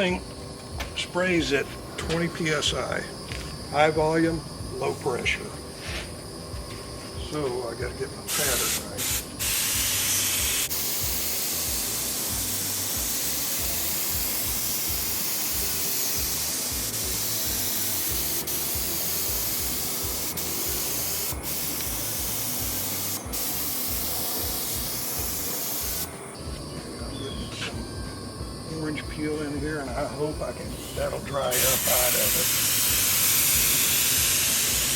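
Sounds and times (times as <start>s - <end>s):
paint spray gun hissing: 8.3s - 26.4s, 30.8s - 34.9s.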